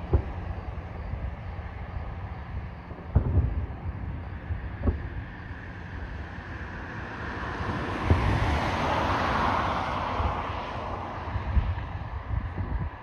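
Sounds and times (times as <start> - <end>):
distant firework shells bursting: 0.0 - 1.4, 2.7 - 5.5
low wind rumble on microphone: 0.0 - 13.0
car passing close by: 6.9 - 11.3.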